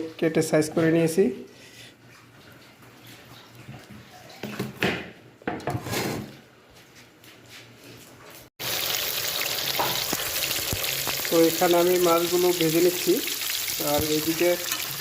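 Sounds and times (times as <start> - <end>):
fish frying in hot oil: 8.6 - 15.0.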